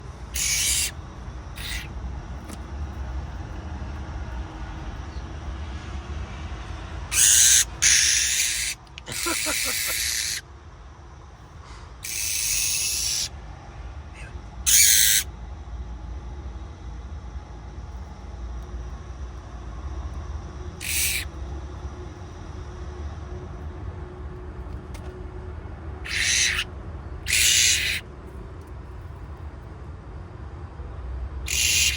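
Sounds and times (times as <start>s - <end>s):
bird harsh rasping calls: 0.3s - 1.0s, 1.6s - 1.9s, 7.1s - 10.4s, 12.0s - 13.3s, 14.2s - 15.3s, 20.8s - 21.3s, 26.0s - 28.0s, 31.5s - 31.9s.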